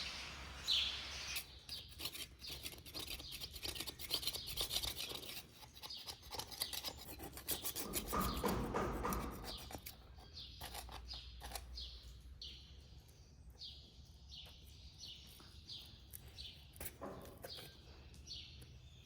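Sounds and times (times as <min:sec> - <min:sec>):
bird chirp: 0:00.0 - 0:19.0
putty knife scraping metal: 0:01.2 - 0:11.7.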